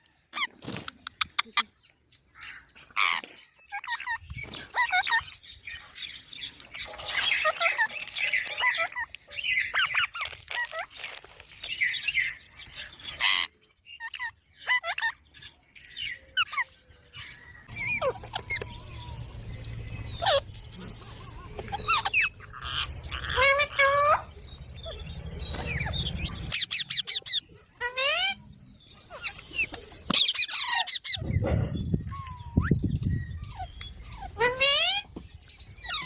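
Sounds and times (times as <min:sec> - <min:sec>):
parakeet chirping and squawking: 0:02.4 - 0:36.0
low rumble: 0:17.6 - 0:26.6.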